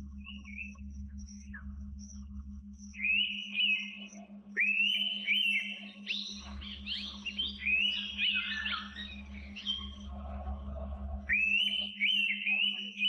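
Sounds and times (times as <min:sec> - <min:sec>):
low hum: 0:00.0 - 0:12.9
bird whistled calls: 0:03.0 - 0:10.1, 0:11.2 - 0:13.0.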